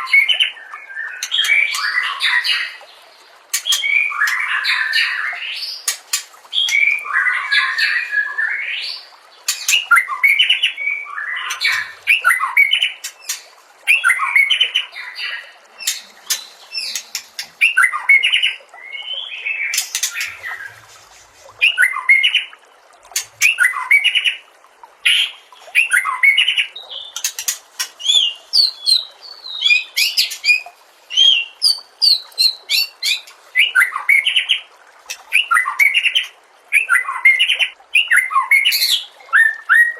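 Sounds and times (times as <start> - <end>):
bird singing varied song: 3.6 - 20.9, 25.1 - 34.6, 35.2 - 39.9.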